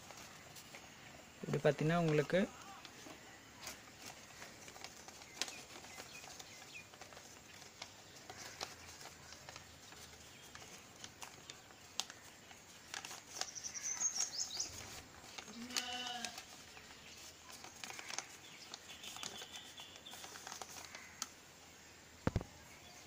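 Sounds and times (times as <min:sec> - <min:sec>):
small birds chirping: 0:00.0 - 0:23.0
animal bleat: 0:15.5 - 0:16.4.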